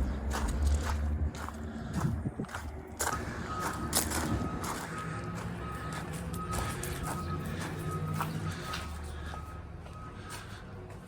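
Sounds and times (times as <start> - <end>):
engine rumbling: 0.0 - 11.0
vehicle backup alarm beeping: 3.0 - 11.0.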